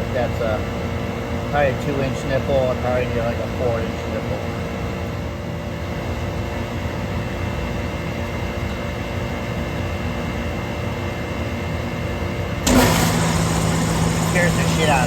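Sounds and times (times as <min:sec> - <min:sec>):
air compressor droning: 0:12.6 - 0:15.0
machinery hum: 0:12.6 - 0:15.0.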